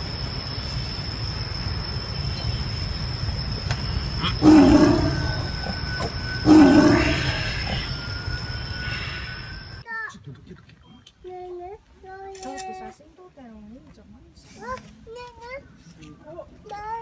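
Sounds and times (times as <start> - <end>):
large animal roaring: 4.2 - 8.2.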